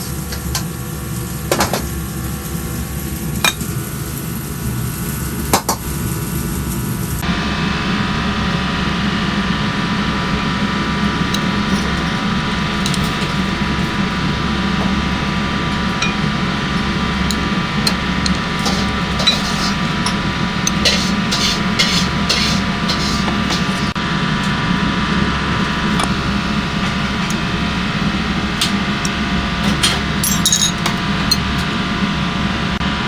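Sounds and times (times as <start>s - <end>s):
stir-frying in a wok: 0.0s - 24.0s
gas burner roaring: 0.0s - 33.0s
metal ladle scraping a wok: 10.4s - 24.0s.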